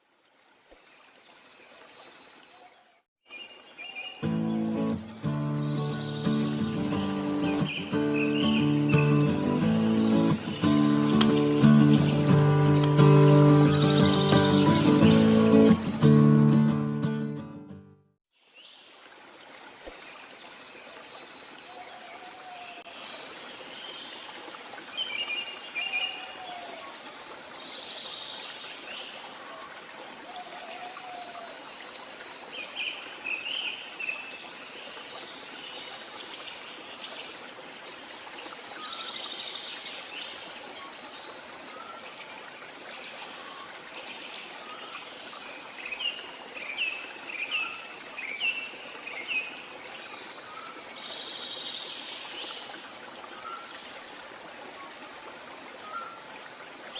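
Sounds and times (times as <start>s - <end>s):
stream running water: 0.0s - 56.9s
wild birds calling: 3.8s - 16.7s.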